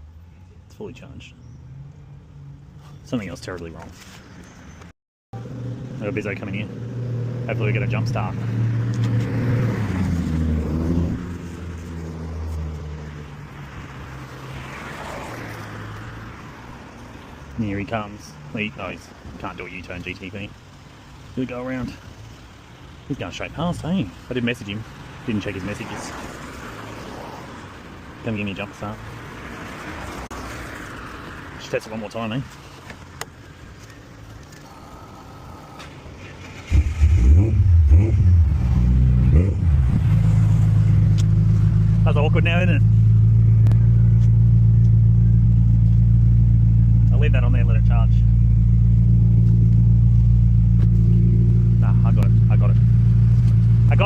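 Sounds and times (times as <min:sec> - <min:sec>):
car passing: 0:05.4 - 0:19.8, 0:20.7 - 0:32.8, 0:33.6 - 0:54.0
car engine running: 0:33.0 - 0:54.0.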